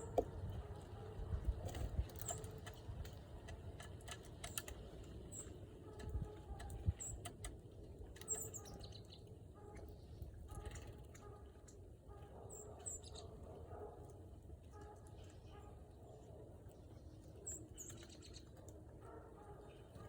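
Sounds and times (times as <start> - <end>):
small birds chirping: 4.1 - 7.4, 8.1 - 11.7, 12.4 - 13.6, 14.7 - 20.0.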